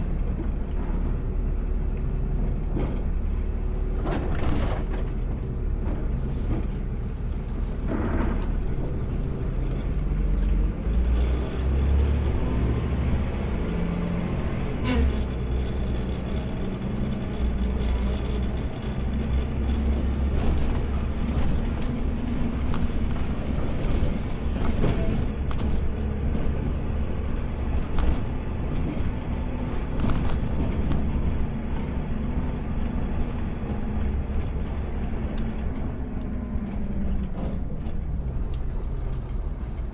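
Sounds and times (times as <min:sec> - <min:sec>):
diesel engine rumble: 0:00.0 - 0:39.9
sharp clicks and knocks: 0:00.4 - 0:01.3, 0:02.7 - 0:10.7, 0:20.2 - 0:39.9.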